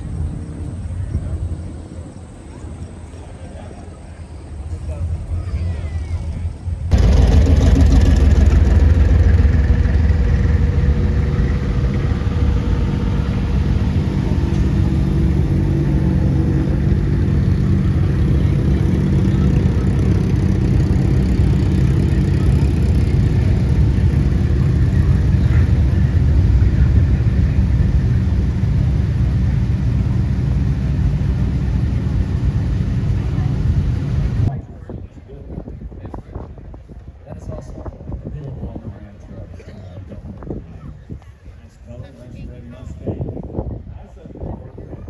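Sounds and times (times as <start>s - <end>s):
car engine running: 6.9s - 34.5s.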